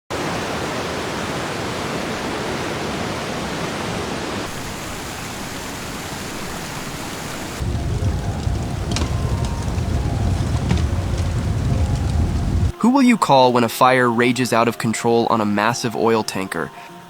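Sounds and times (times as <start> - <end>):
water spraying: 4.4 - 12.7
deep rumble: 7.6 - 12.7.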